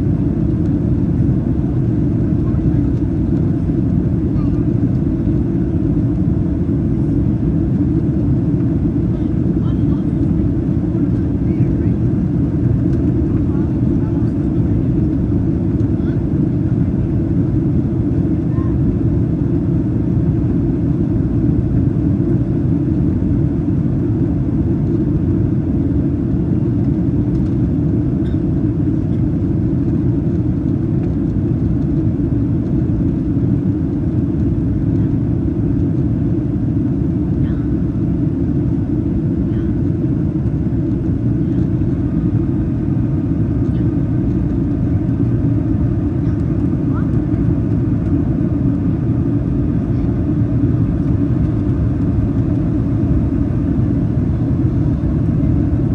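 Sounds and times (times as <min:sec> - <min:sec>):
airplane cabin engine rumble: 0:00.0 - 0:55.9.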